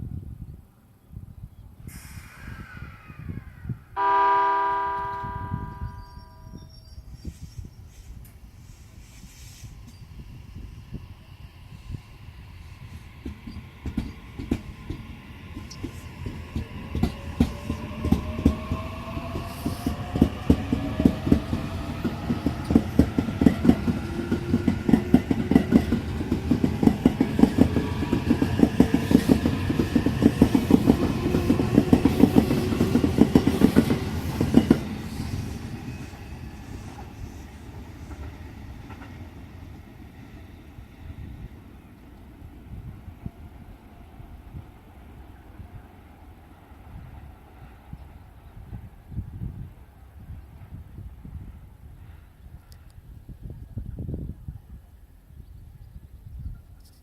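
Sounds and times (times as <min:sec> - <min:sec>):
train wheels clacking over rail joints: 0:13.2 - 0:35.0.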